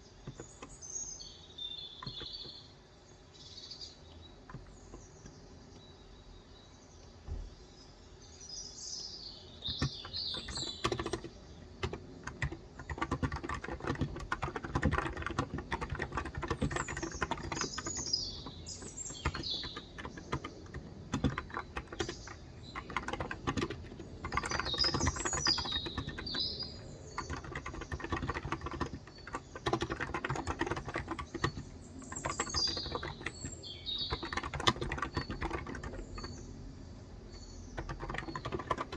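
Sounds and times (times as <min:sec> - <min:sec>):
birds chirping: 0:00.0 - 0:38.9
typing on keyboard: 0:00.2 - 0:00.8, 0:02.0 - 0:02.6, 0:04.4 - 0:05.4, 0:09.6 - 0:36.6, 0:37.6 - 0:38.9.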